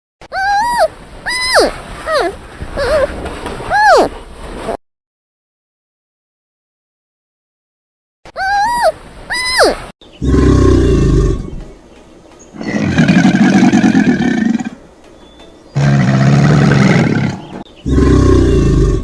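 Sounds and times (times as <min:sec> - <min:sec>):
big cat roaring: 0:10.2 - 0:11.6, 0:12.6 - 0:14.8, 0:15.8 - 0:19.0.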